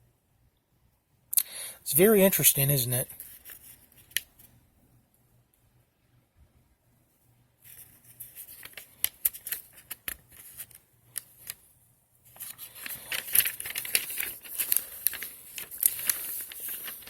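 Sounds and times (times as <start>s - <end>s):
paper pages turning and rustling: 3.2s - 4.5s, 7.7s - 11.6s, 12.3s - 17.0s.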